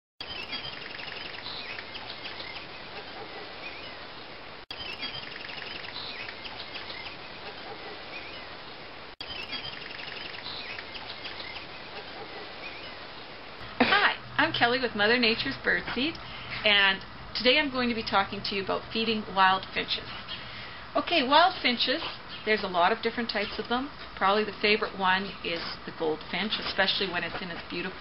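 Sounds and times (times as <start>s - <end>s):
birds chirping and trilling: 0.2s - 13.6s
steady outdoor hiss: 0.2s - 28.0s.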